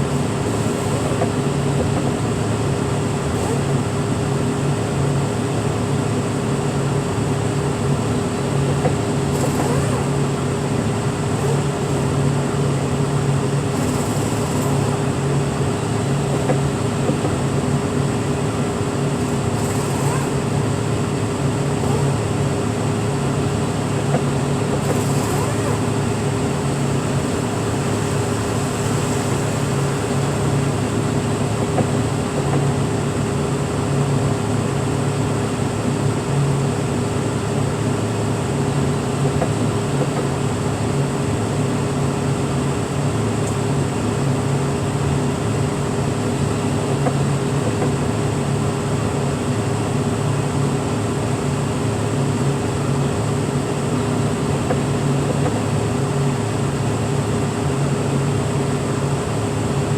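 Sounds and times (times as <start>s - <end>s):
machinery engine humming: 0.0s - 41.5s.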